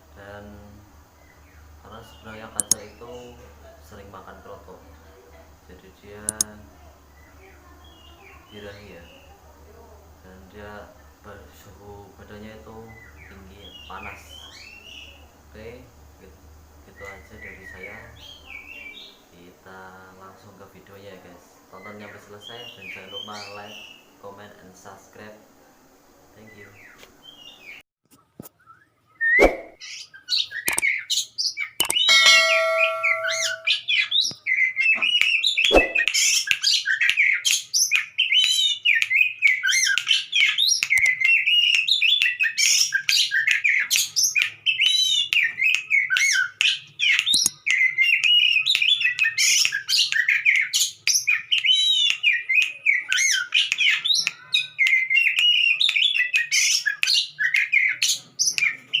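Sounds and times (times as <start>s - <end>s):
bird singing varied chirps: 1.1s - 3.4s, 6.3s - 9.3s, 28.6s - 59.0s.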